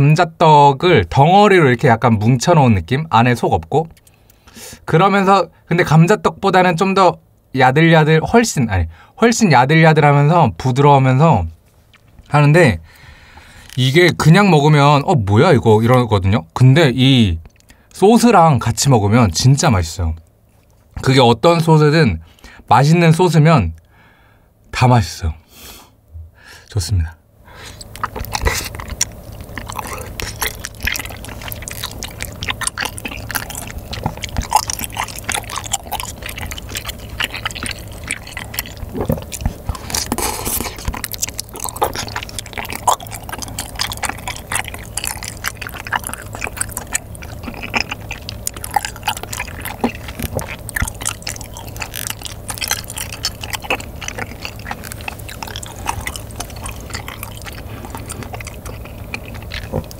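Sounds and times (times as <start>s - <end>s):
wet chewing with mouth clicks: 2.0s - 5.3s, 11.7s - 16.1s, 17.0s - 21.6s, 27.5s - 59.9s.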